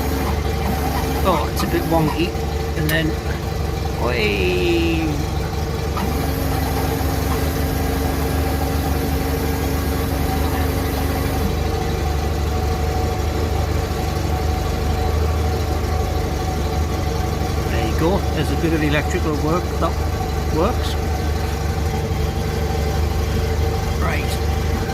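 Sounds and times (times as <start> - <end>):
electric motor whining: 0.0 - 3.2, 4.4 - 11.7
engine idling: 0.0 - 24.9.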